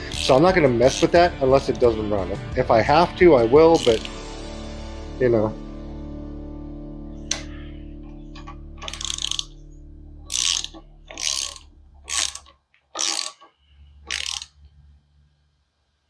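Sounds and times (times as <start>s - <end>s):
ratchet wrench clicking: 0.1s - 1.2s, 3.8s - 4.2s, 8.4s - 9.6s, 10.3s - 14.6s.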